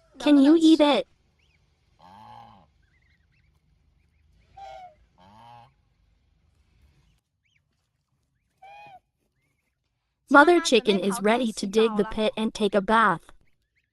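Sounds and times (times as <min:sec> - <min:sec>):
goose honking: 0:02.0 - 0:02.7, 0:04.5 - 0:05.8.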